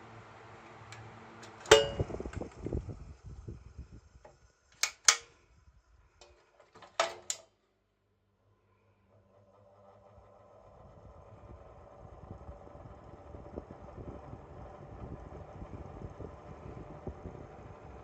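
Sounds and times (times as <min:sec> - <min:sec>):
ventilation fan humming: 0:00.0 - 0:07.6, 0:08.5 - 0:18.0
fan switch clicking: 0:04.8 - 0:05.3.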